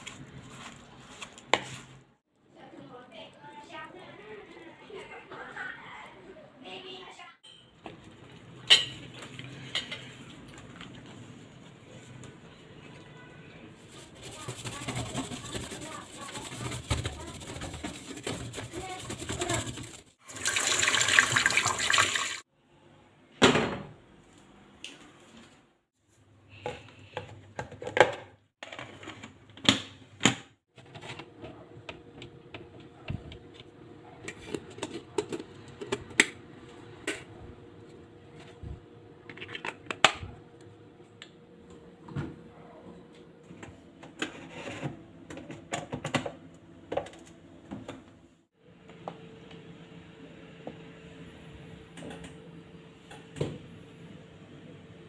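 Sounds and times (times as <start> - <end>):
clatter of kitchen items: 7.4 - 11.2, 13.8 - 20.2, 26.5 - 36.4, 38.4 - 40.4, 43.0 - 48.1
water running from kitchen tap: 18.5 - 22.4.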